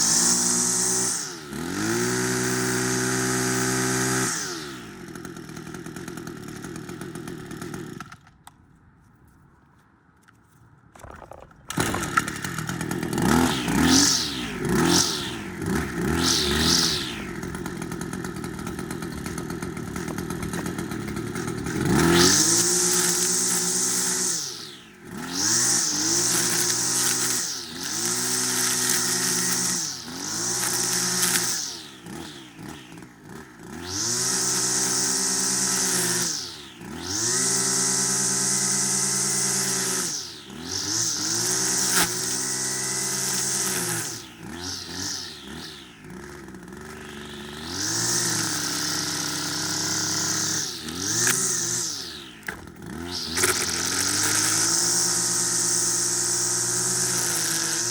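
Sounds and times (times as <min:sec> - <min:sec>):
string trimmer engine revving: 0:00.0 - 0:08.3, 0:11.0 - 0:57.9.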